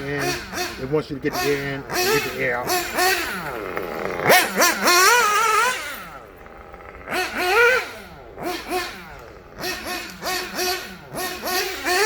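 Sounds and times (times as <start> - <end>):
model car nitro engine revving: 0.0 - 12.0.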